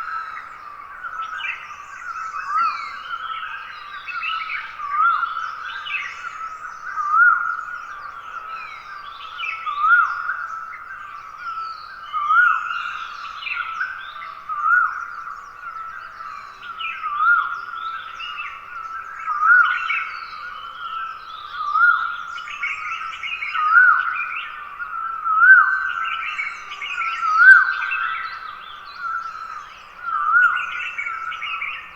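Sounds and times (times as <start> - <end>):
birds chirping and twittering: 0.0 - 31.9.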